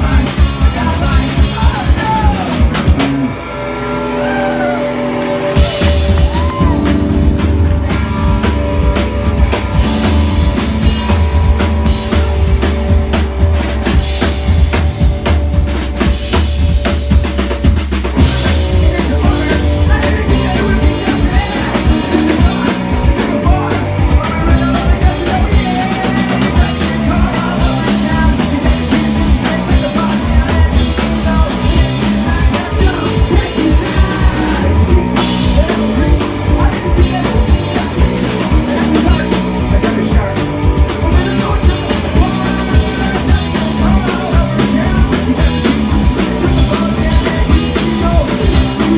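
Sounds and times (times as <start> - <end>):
person singing: 0.0 - 2.8, 4.1 - 7.4, 18.2 - 48.9
rock band playing live: 0.0 - 48.9.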